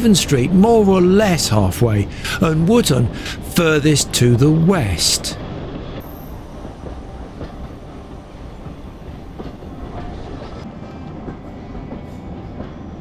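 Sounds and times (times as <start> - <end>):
train wheels rumbling on rail: 0.0 - 13.0
rail joint clicks: 5.1 - 13.0.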